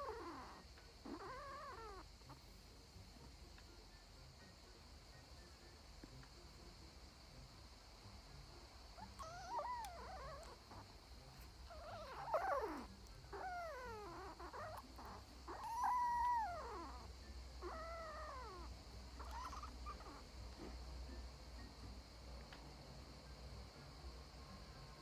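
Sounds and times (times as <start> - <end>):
pet animal calling: 0.0 - 2.4, 9.0 - 11.0, 11.6 - 20.3.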